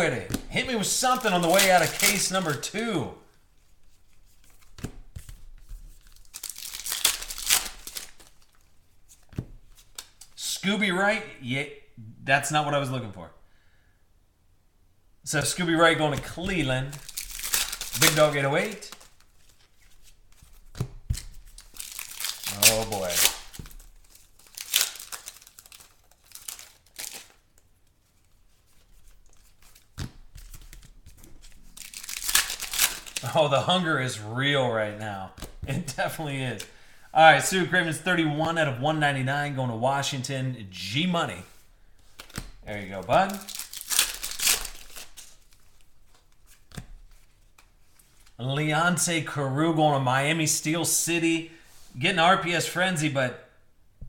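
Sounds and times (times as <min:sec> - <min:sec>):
wrapper tearing and crinkling: 0:00.8 - 0:02.8, 0:05.9 - 0:08.7, 0:16.4 - 0:20.2, 0:21.1 - 0:33.4, 0:42.2 - 0:47.4.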